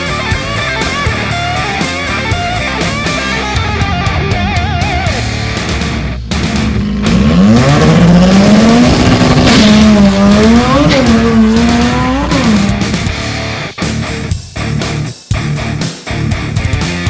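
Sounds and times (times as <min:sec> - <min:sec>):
drag car engine revving hard: 0:05.1 - 0:13.5.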